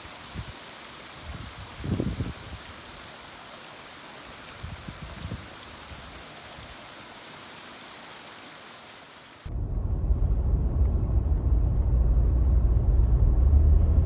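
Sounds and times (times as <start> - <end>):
rushing falling water: 0.0 - 9.5.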